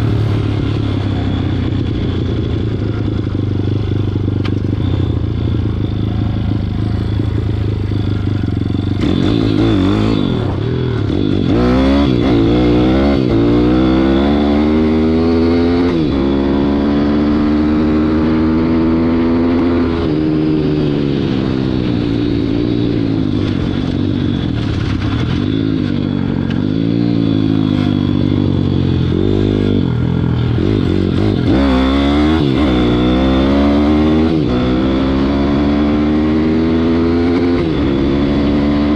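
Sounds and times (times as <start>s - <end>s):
motorbike engine revving: 0.0s - 38.9s.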